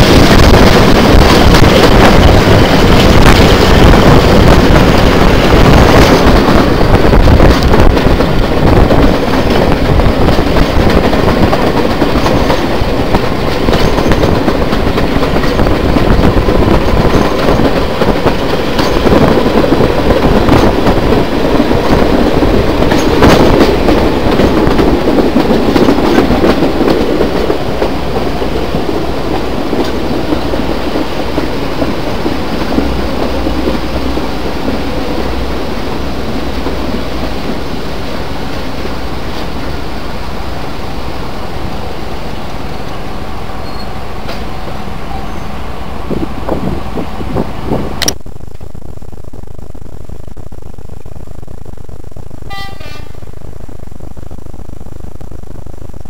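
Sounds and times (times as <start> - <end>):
sharp rail clicks: 0.0 - 39.9, 43.7 - 45.2
train wheels rumbling on rails: 0.0 - 56.0.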